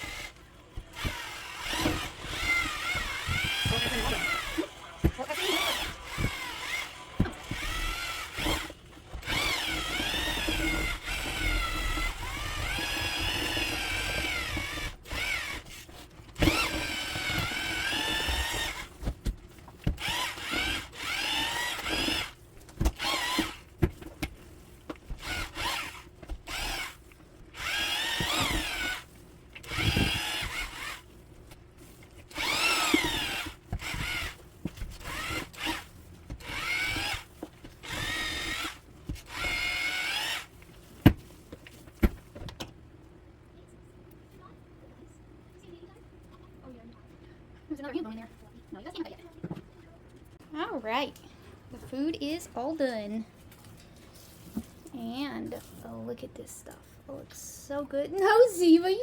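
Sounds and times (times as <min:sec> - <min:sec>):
electric drill mixing thick food: 0:00.0 - 0:42.3.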